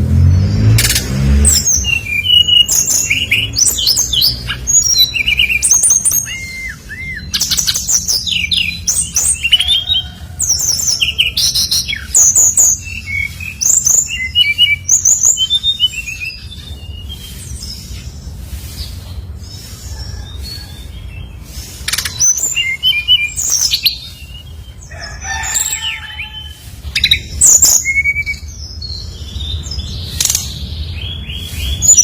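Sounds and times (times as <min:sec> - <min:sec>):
songbird singing chirps and whistles: 0:01.5 - 0:09.9, 0:11.0 - 0:18.0, 0:21.8 - 0:24.6, 0:27.0 - 0:29.1.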